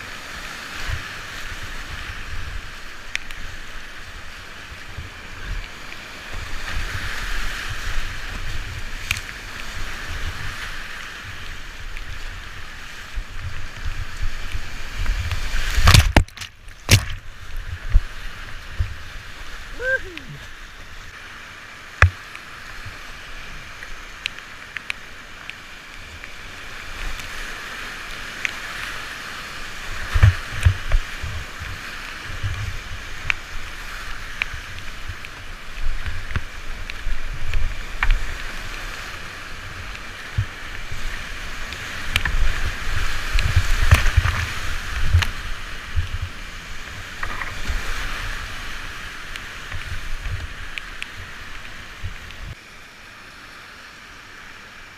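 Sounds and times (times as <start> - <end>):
whitewater rushing: 0.0 - 54.9
sharp water splashes: 14.6 - 18.6.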